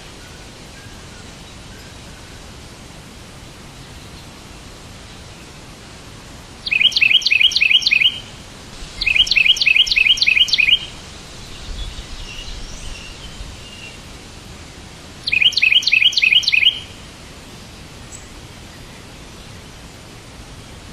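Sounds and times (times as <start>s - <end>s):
steady background hiss: 0.0s - 20.9s
songbird chirping: 6.6s - 19.6s.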